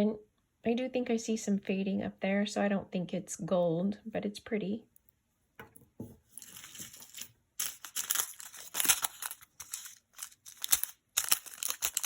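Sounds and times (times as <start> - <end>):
jewelry packaging rustling: 6.3 - 12.0
jewelry clicking: 6.5 - 12.0.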